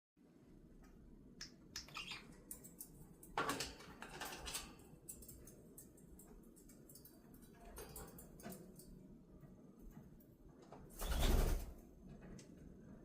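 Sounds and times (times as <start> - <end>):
small birds chirping: 1.3 - 3.3.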